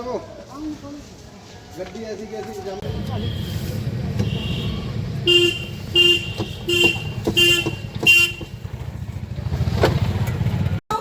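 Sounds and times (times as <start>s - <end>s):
vehicle horn beeps: 2.8s - 8.6s
engine rumble: 2.8s - 11.0s.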